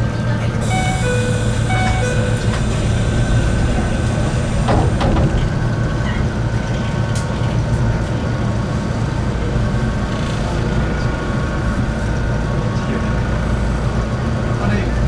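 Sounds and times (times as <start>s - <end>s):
electric train rumbling on track: 0.0s - 15.0s
train wheel squeal: 0.6s - 5.2s.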